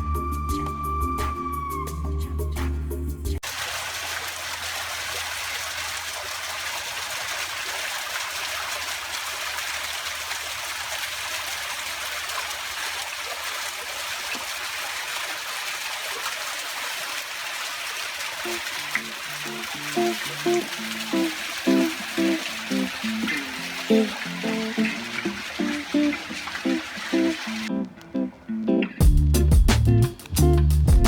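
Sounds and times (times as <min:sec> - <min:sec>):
music notes: 0:00.0 - 0:03.4, 0:18.5 - 0:31.0
stream water rushing: 0:03.4 - 0:28.4.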